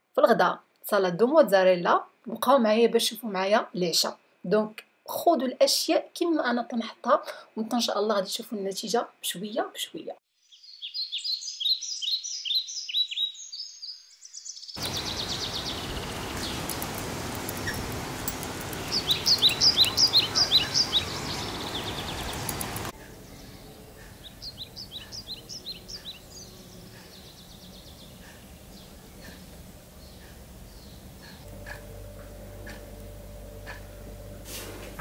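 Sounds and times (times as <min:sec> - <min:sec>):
small birds chirping: 0:10.3 - 0:34.3
steady outdoor noise: 0:14.8 - 0:35.0.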